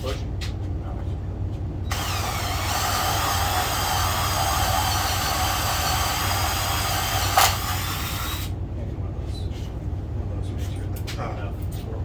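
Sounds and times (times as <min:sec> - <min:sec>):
small electric motor whining: 0:01.9 - 0:08.5.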